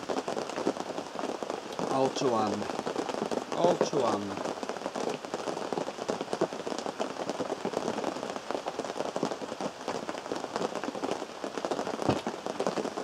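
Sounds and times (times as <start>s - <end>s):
rain drumming on a tent roof: 0.0s - 13.0s.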